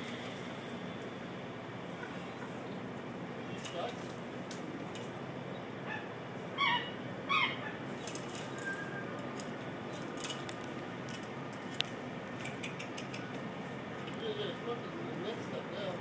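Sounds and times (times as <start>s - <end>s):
outdoor background noise: 0.0s - 16.0s
bird calling: 5.5s - 8.0s
sharp click: 12.4s - 13.4s.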